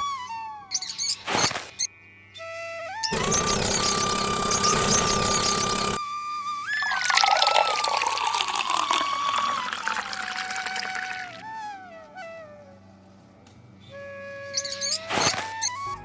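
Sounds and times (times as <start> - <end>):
flute-like music: 0.0 - 16.0
water pump gushing: 3.1 - 6.0, 6.8 - 11.4.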